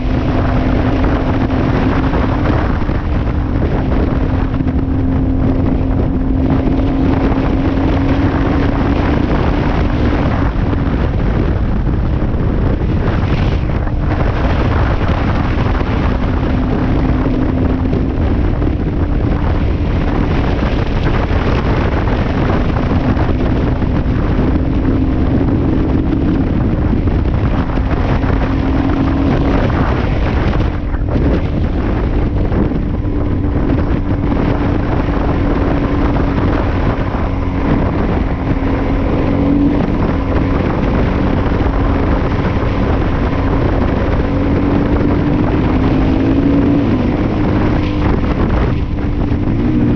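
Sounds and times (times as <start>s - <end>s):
motorcycle engine running: 0.0s - 49.9s
wind buffeting microphone: 0.0s - 49.9s.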